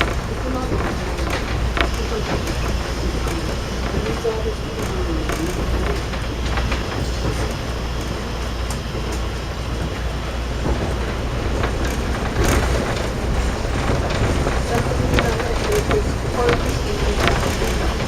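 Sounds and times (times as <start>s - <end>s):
diesel railcar engine and wheel rumble: 0.0s - 18.0s
sharp track clicks: 0.0s - 18.0s.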